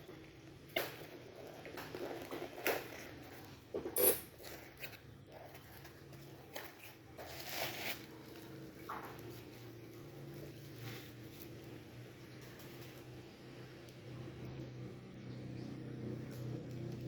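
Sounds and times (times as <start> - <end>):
packaging rustling and crinkling: 4.4 - 9.6.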